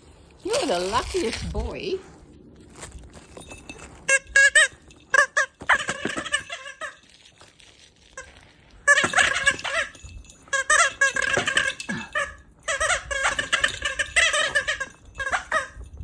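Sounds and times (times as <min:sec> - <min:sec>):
squeaky dog toy squeaking: 0:03.8 - 0:07.3, 0:08.2 - 0:16.0.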